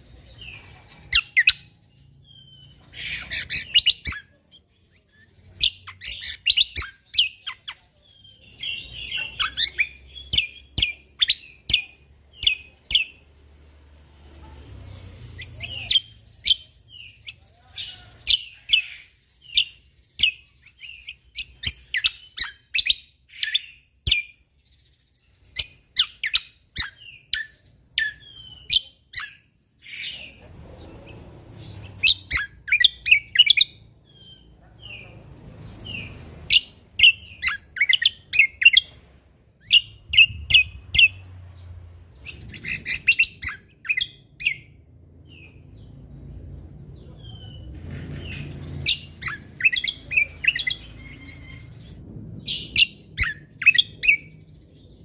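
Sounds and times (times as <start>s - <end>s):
songbird whistling: 2.3s - 7.8s, 25.6s - 30.1s, 32.0s - 34.4s, 35.9s - 38.9s, 39.6s - 41.3s, 42.2s - 44.8s, 48.8s - 51.9s.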